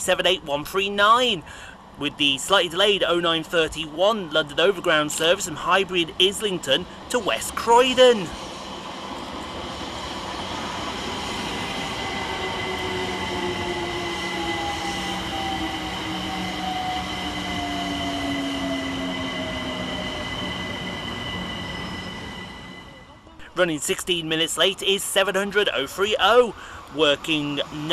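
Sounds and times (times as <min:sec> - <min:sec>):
steady high whine: 0:00.0 - 0:27.9
train wheels rumbling on track: 0:00.0 - 0:27.9
electric train braking: 0:03.1 - 0:23.2.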